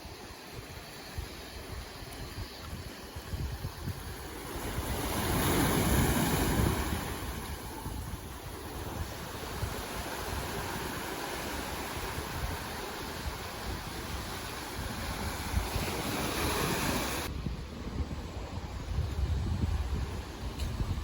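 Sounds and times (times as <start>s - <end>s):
sea waves washing in: 0.0s - 19.0s
wind buffeting microphone: 0.0s - 21.0s.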